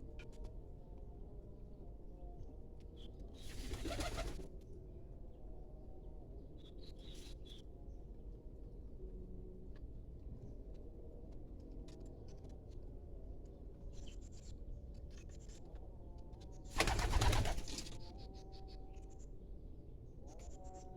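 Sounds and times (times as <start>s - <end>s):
wings rustling flurry: 3.5s - 4.4s, 16.8s - 18.0s.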